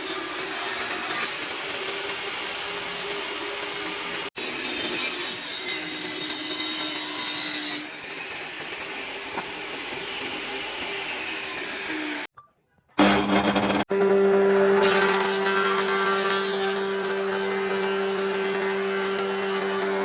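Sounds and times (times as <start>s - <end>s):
power tool working wood: 13.0s - 20.0s.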